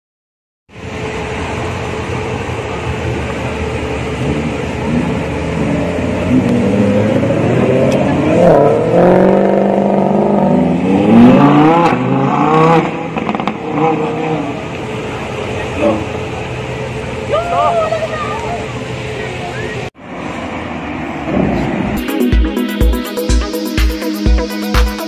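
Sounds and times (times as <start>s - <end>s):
traffic hum: 0.7s - 25.0s
car engines revving past: 0.8s - 17.4s, 18.1s - 22.2s.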